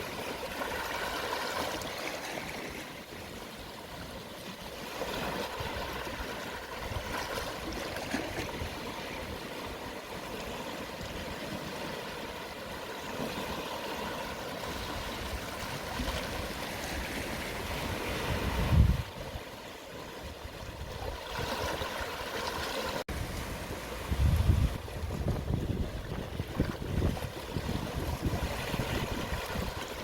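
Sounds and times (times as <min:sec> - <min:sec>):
sea waves washing on shore: 0:00.0 - 0:30.0.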